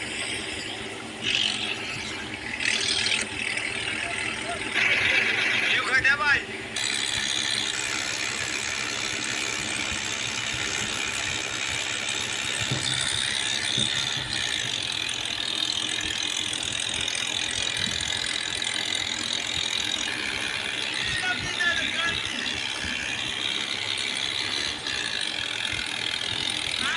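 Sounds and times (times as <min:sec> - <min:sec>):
tractor engine rattling: 0:00.0 - 0:26.9.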